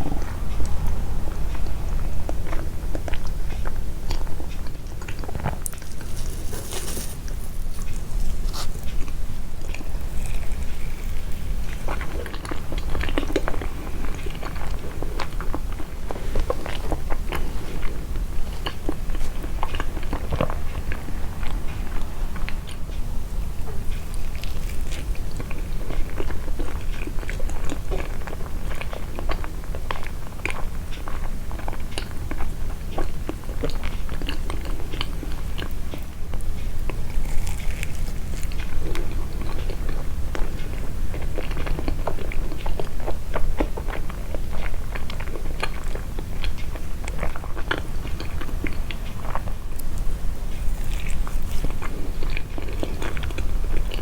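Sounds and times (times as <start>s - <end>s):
low steady hum: 0.0s - 54.0s
close chewing mouth clicks: 23.9s - 54.0s.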